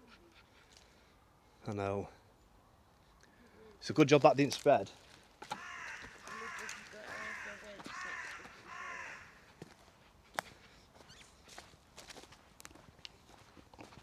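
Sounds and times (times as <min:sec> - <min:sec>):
crow cawing: 0:05.4 - 0:09.7.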